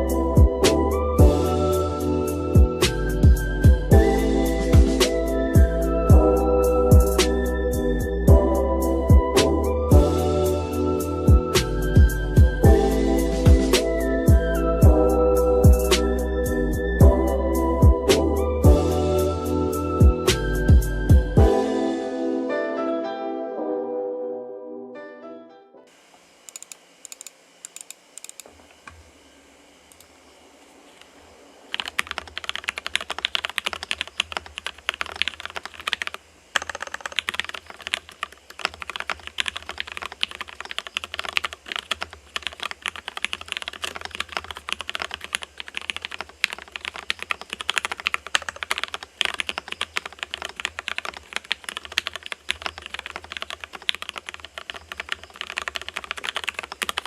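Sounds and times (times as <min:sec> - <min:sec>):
mechanical keyboard typing: 0:31.7 - 0:57.0.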